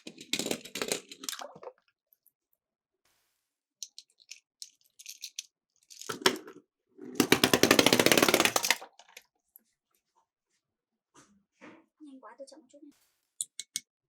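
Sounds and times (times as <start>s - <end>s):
toy cars clicking and tapping: 0.0s - 1.6s, 3.8s - 9.2s
toy car rattling down a slope: 7.1s - 9.2s.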